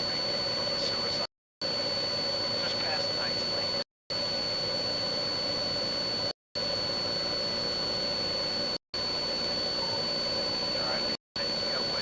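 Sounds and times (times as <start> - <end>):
helicopter turbine whine and rotor drone: 0.0 - 12.0.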